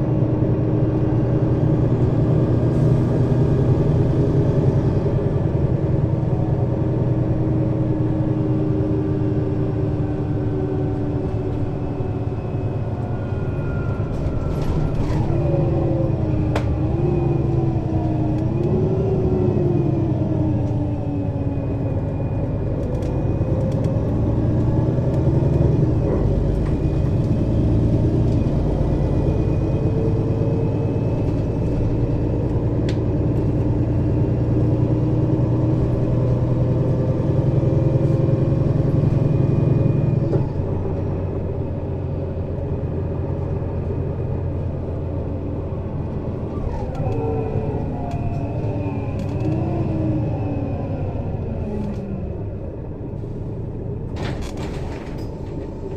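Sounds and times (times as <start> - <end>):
bus diesel engine running: 0.0 - 55.9
whining tone shifting in pitch: 8.3 - 32.2.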